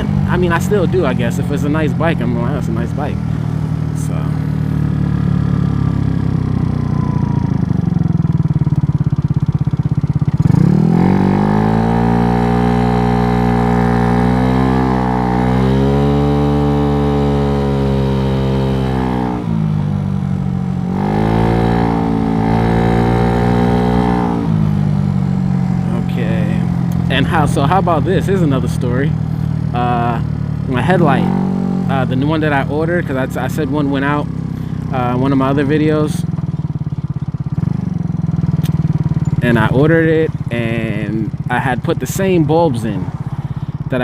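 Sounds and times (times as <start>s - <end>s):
scooter engine revving: 0.0s - 44.0s.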